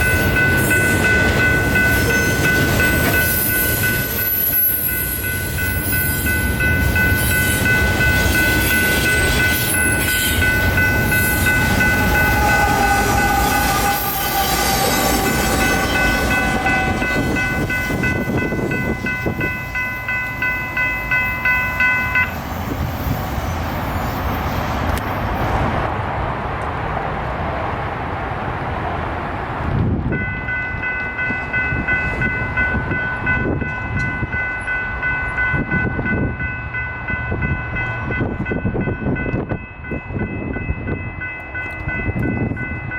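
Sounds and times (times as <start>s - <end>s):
steady high-pitched tones: 0.0s - 24.5s
train passing rumble: 0.0s - 42.9s.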